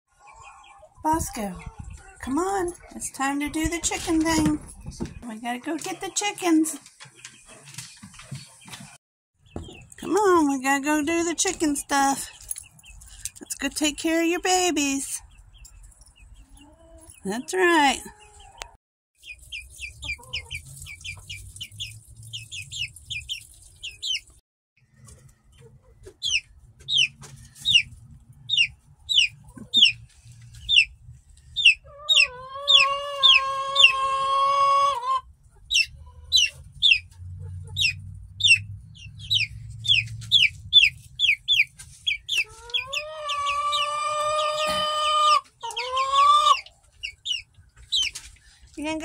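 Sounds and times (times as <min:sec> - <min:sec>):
chicks peeping: 0:00.1 - 0:24.3, 0:25.0 - 0:49.0
young rooster crowing: 0:32.1 - 0:35.1.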